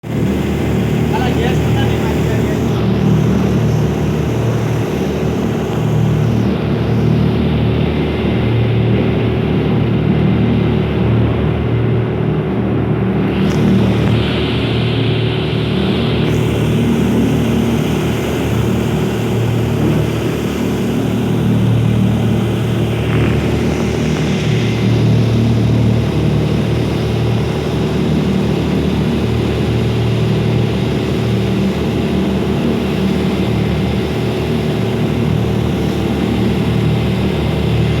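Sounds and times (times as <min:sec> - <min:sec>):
rushing noise: 0:00.0 - 0:07.8, 0:13.2 - 0:27.4
boat engine droning: 0:00.0 - 0:38.0.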